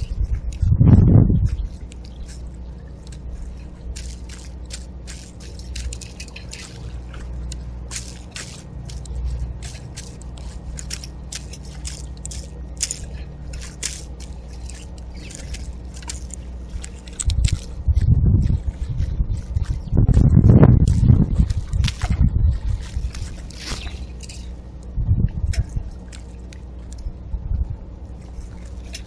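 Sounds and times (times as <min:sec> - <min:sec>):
low steady rumble: 0:00.0 - 0:29.0
seeds being cracked: 0:03.9 - 0:17.8.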